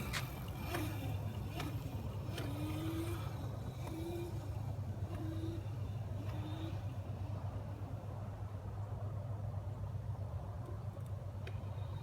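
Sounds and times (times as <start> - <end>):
small motorcycle rumbling: 0.0 - 8.1.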